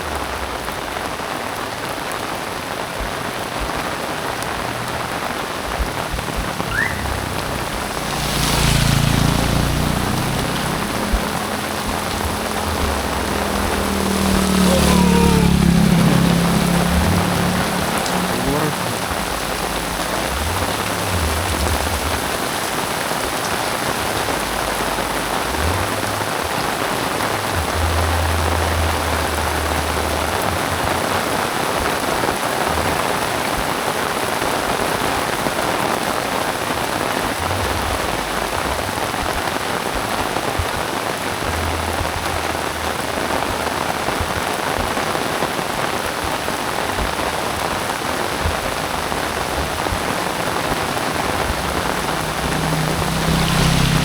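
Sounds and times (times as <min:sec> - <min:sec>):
heavy rain falling: 0:00.0 - 0:54.0
low rumble: 0:03.6 - 0:22.4.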